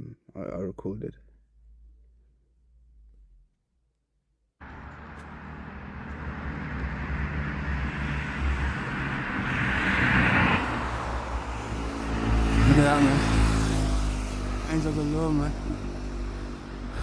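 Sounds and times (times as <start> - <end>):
loud outdoor rush with low rumble: 4.6 - 17.0.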